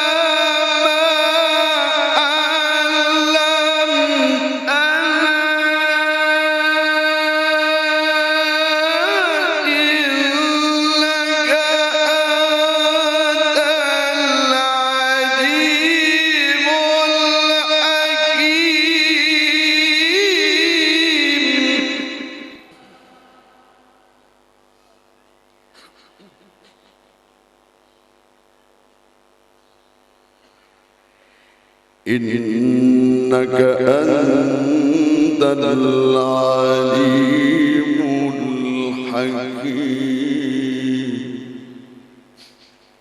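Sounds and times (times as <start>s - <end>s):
man reciting melodically: 0.0s - 23.6s, 32.1s - 42.2s
sound system hum: 0.0s - 43.0s.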